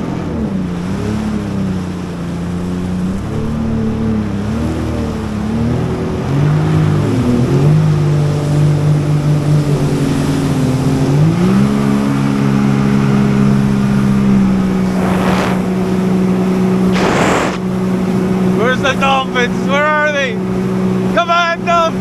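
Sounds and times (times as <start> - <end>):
jet ski engine running: 0.0 - 22.0
whooshes of noise: 14.6 - 17.6.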